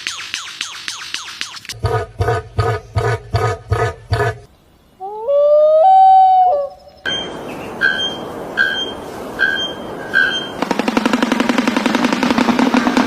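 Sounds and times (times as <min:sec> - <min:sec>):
long rising animal call: 0:05.0 - 0:06.8
steady hiss: 0:07.3 - 0:10.8.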